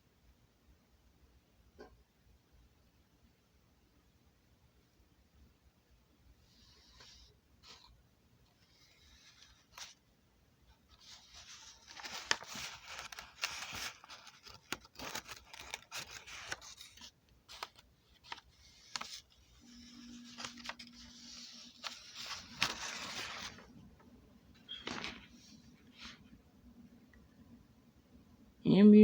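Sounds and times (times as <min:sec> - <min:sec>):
scraping and rustling: 0:10.8 - 0:26.4.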